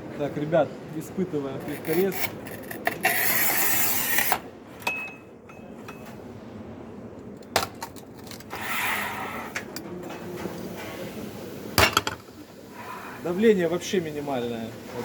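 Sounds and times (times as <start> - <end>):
scraping slide: 8.4 - 9.6.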